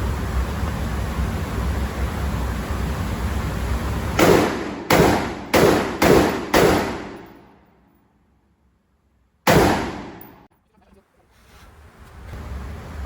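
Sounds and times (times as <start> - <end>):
gunshots: 4.2 - 7.6, 9.5 - 10.5.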